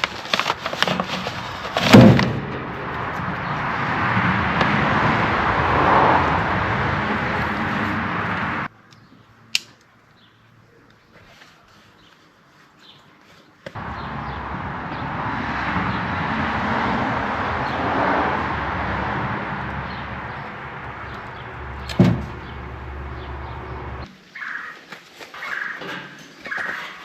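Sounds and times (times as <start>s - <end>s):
engine running steadily: 1.8s - 8.7s, 13.8s - 24.1s.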